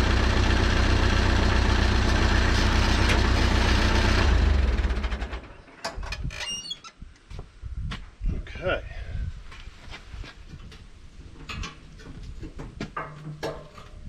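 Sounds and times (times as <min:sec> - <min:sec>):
tractor engine idling: 0:00.0 - 0:05.5.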